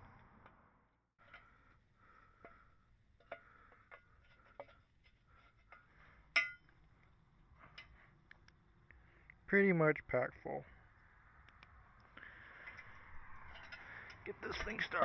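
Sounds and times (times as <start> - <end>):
metal knocks and clinks: 3.2 - 6.7
sharp ringing metallic clink: 6.4 - 6.7.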